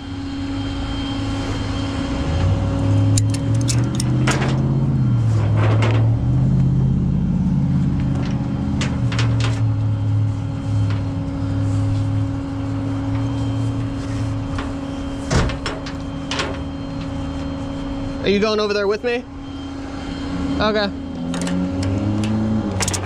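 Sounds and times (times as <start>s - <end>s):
steady hum: 0.0s - 23.0s
tow truck engine rumble: 0.0s - 23.0s
metallic clicks and clanks: 3.2s - 4.6s, 22.2s - 23.0s.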